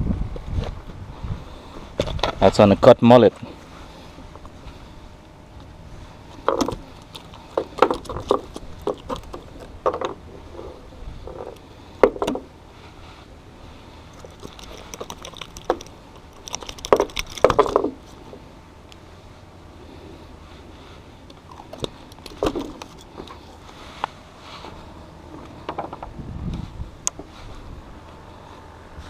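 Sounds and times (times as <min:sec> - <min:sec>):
handling knocks and rattles: 0:06.4 - 0:10.2, 0:14.1 - 0:18.4, 0:21.5 - 0:23.6.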